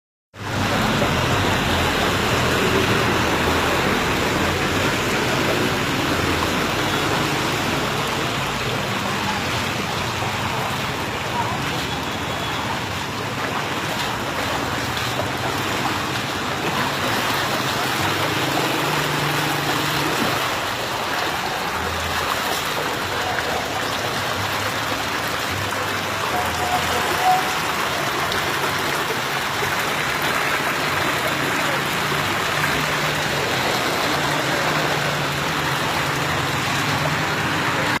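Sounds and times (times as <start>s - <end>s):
rain pouring: 0.4s - 38.0s
running water: 0.4s - 38.0s.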